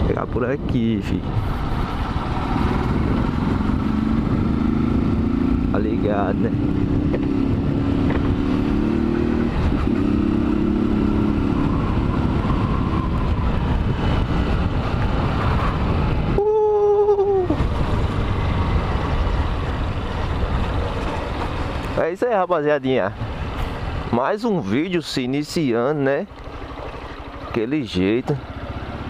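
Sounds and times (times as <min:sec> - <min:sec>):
wind noise on microphone: 0:00.0 - 0:22.0
motorcycle engine running: 0:01.6 - 0:16.3, 0:26.4 - 0:29.0.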